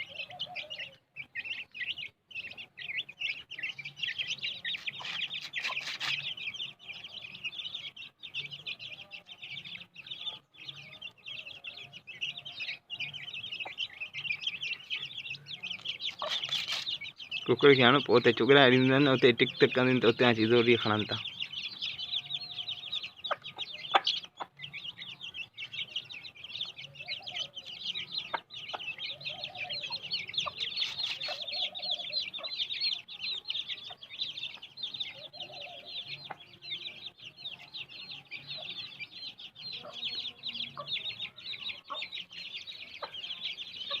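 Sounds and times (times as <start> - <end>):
hen clucking: 0.0 - 6.6, 13.4 - 21.3, 23.0 - 25.0, 26.6 - 36.6, 39.7 - 42.3, 42.9 - 44.0
chicks peeping: 0.0 - 44.0.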